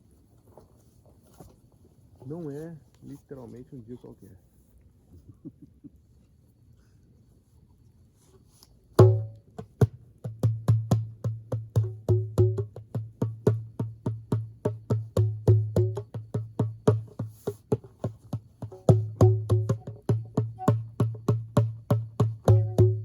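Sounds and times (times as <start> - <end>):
djembe hand drumming: 9.0 - 23.0.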